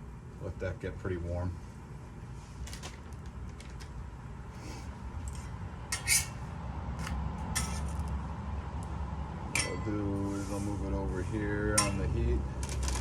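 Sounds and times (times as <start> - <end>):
steady low hum: 0.0 - 13.0
utensils clinking on griddle: 5.9 - 6.4, 7.0 - 8.0, 9.5 - 10.0, 11.7 - 13.0.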